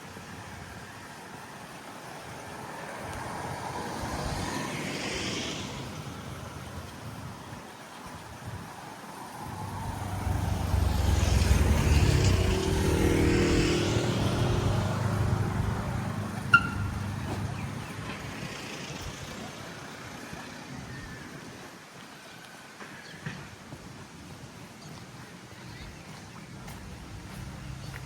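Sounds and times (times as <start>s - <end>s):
vehicle passing by: 2.9s - 6.8s, 9.3s - 20.7s.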